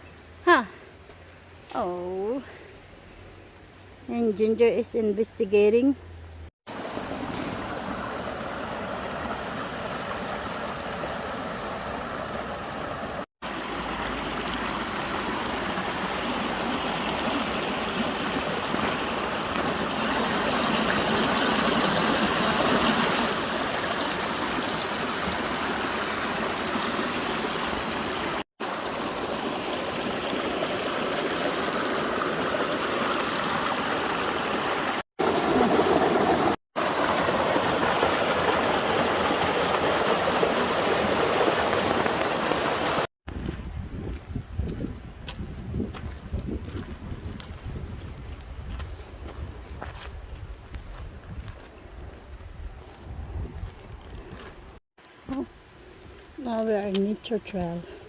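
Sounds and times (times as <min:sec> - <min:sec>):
creek water flowing: 0:06.7 - 0:43.1.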